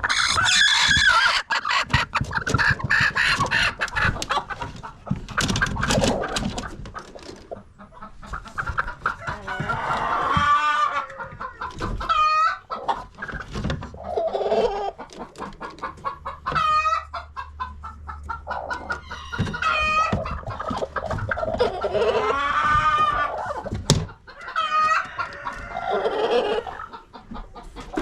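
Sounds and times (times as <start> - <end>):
loud pitched chicken calls: 0.0 - 4.6, 7.8 - 13.4, 16.1 - 28.0
chickens clucking: 0.0 - 28.0.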